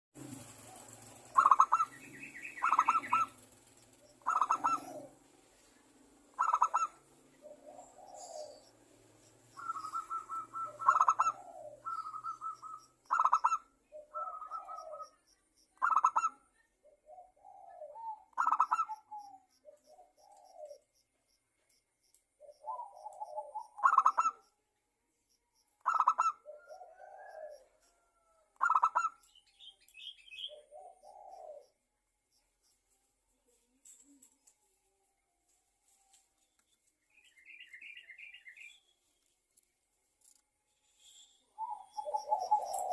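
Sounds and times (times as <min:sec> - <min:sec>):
dove cooing: 0:00.2 - 0:21.0, 0:22.4 - 0:24.5, 0:25.8 - 0:29.3, 0:30.0 - 0:31.9, 0:41.5 - 0:42.9.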